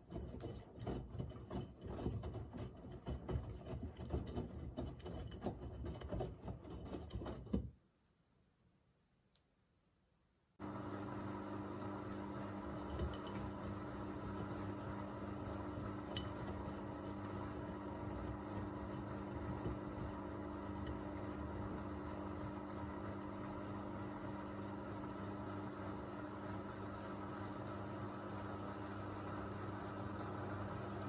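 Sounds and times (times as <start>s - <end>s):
washing machine humming: 10.6s - 31.0s.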